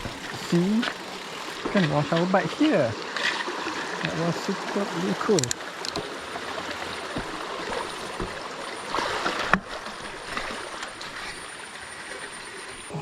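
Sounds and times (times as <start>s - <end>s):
stream water running: 0.0s - 13.0s
sharp click: 5.3s - 6.1s.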